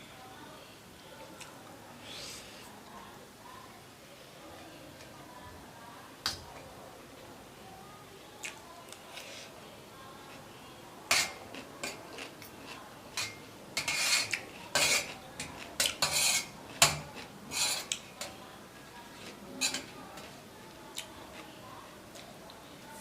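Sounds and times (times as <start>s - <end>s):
cutlery clinking and scraping plate: 11.1s - 18.4s, 19.2s - 20.3s.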